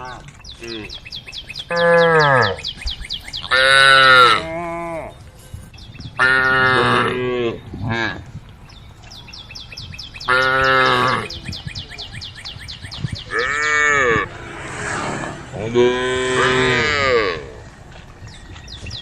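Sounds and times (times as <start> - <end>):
cattle mooing: 13.3 - 14.5, 15.5 - 17.6.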